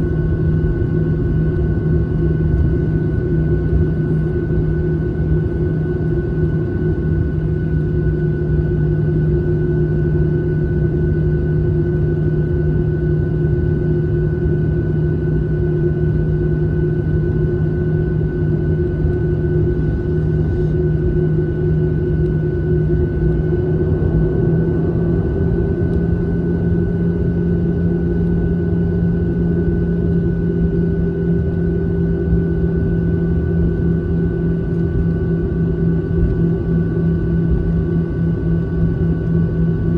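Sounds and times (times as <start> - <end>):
airliner cabin drone: 0.0 - 39.9
held hum tones: 17.0 - 39.9.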